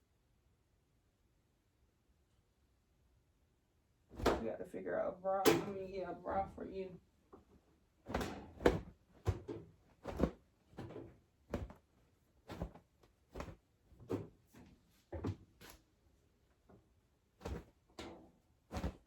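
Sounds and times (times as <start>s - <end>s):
fabric flaps and snaps: 4.2s - 4.4s, 8.1s - 14.3s, 17.4s - 17.9s, 18.7s - 19.0s.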